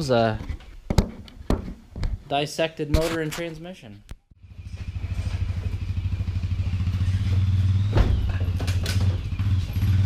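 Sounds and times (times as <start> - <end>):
engine rumbling: 4.3 - 10.0.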